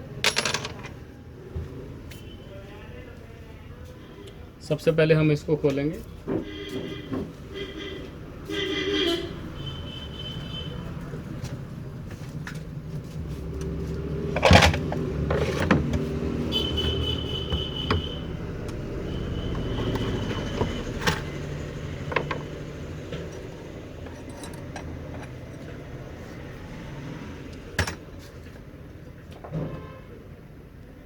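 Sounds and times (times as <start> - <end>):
metal clicks and knocks: 14.3 - 16.1, 19.5 - 25.8.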